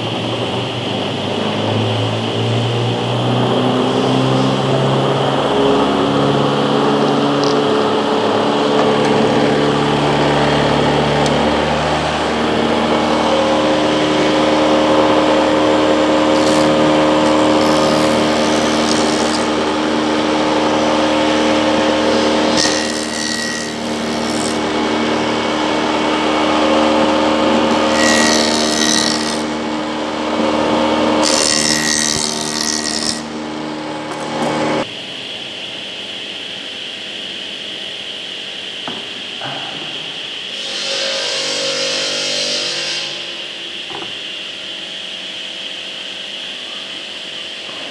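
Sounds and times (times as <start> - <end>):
machine cutting wood: 1.4 - 34.9, 40.5 - 44.0
electric motor running: 2.6 - 34.9.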